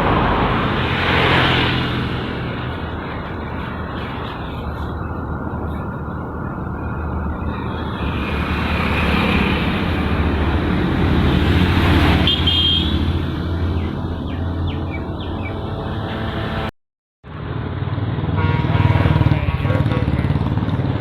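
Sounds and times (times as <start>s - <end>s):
road and wind noise: 0.0s - 21.0s.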